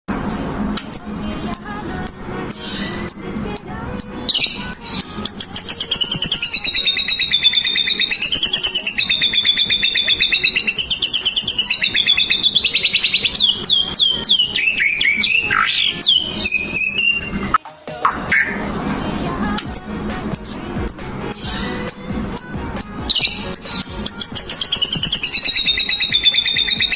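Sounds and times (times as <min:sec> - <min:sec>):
bird rattling trill: 0:00.9 - 0:17.3, 0:19.7 - 0:26.9
bird chirps: 0:00.9 - 0:19.1, 0:19.7 - 0:26.9
bird downward-sliding whistles: 0:05.2 - 0:17.4, 0:21.9 - 0:26.9.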